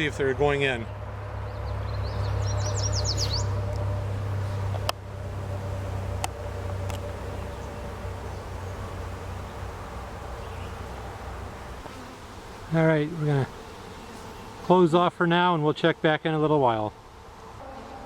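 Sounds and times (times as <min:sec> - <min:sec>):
honeybees buzzing: 0:00.0 - 0:16.2, 0:16.8 - 0:18.0
bird chirping: 0:00.8 - 0:03.7, 0:07.2 - 0:09.7, 0:10.3 - 0:10.9.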